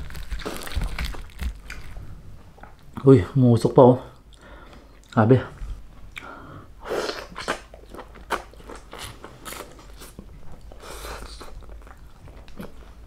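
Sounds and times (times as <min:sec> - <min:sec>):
crunchy chewing: 0:00.0 - 0:02.0, 0:07.1 - 0:13.0.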